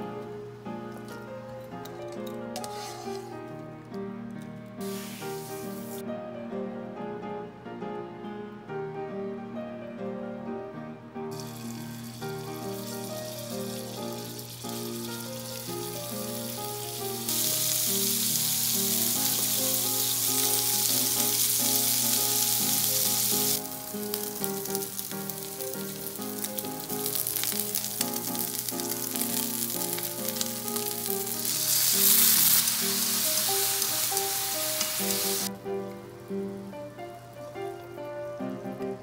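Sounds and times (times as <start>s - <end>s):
background music: 0.0s - 39.0s
food sizzling in oil: 2.6s - 3.4s, 4.8s - 6.0s, 11.3s - 35.5s.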